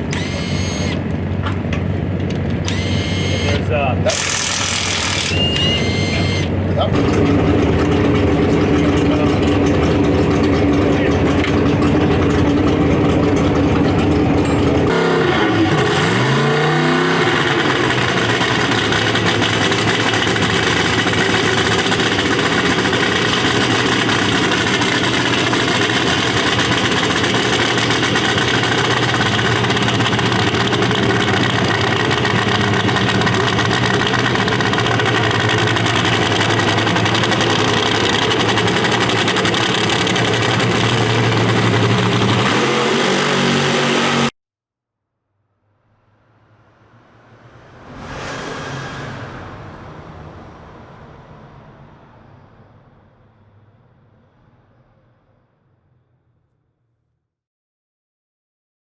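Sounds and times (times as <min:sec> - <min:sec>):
racing engine running: 0:00.0 - 0:44.3.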